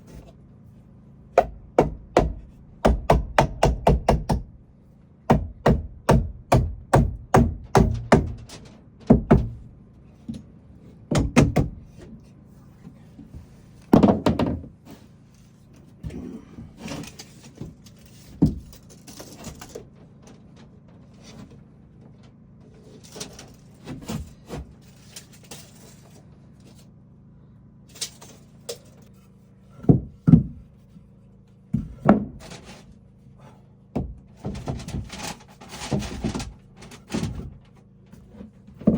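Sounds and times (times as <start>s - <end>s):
knocks on wood: 1.4s - 4.5s, 5.3s - 8.4s, 9.1s - 9.6s, 11.1s - 11.8s, 29.8s - 30.6s.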